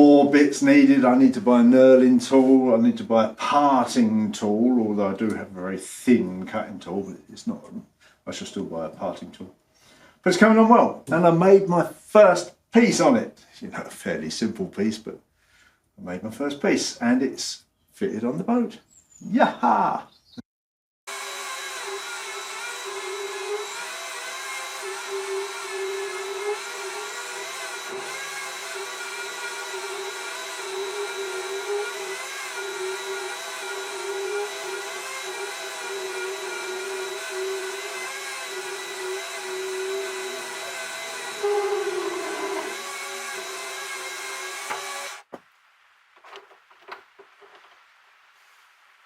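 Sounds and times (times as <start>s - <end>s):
lathe motor whining: 21.1s - 45.3s.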